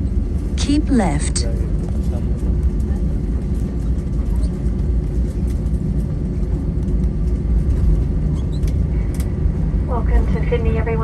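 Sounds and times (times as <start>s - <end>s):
airplane cabin rumble: 0.0s - 11.0s.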